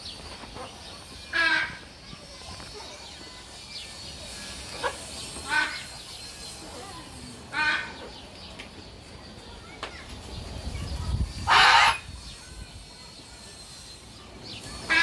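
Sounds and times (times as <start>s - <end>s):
parrot squawking: 11.4s - 12.1s.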